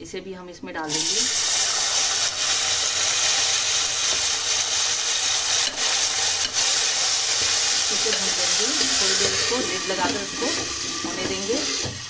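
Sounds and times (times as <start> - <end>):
peas sizzling in a pan: 0.9 - 12.0
spoon knocking on a pan: 7.4 - 12.0.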